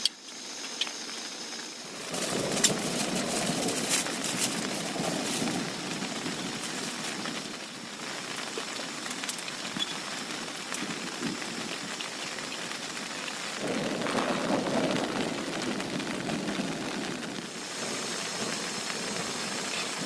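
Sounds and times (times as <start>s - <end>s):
heavy rain: 0.0s - 20.0s
low thunder rumble: 1.8s - 8.0s, 13.5s - 20.0s.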